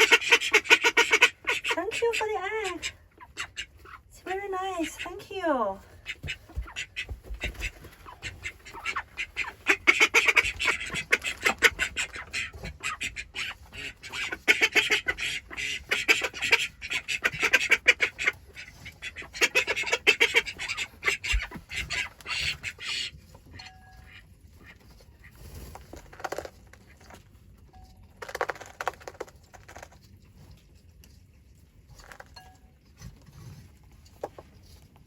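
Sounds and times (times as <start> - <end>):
hens clucking: 0.0 - 27.2.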